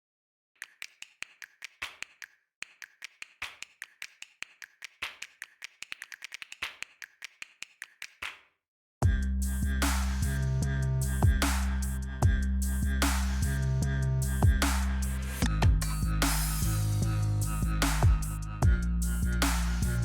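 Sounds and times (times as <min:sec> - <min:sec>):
sharp snaps or taps: 0:00.6 - 0:08.4.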